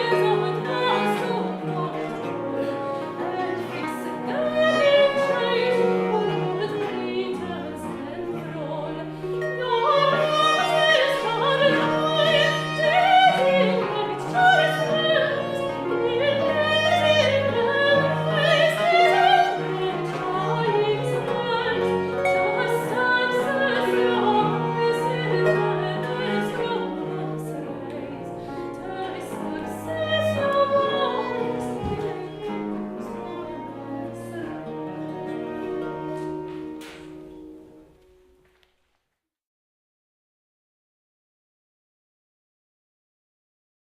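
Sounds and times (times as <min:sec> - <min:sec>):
woman singing classically: 0:00.0 - 0:36.2
early music ensemble playing: 0:00.0 - 0:38.8.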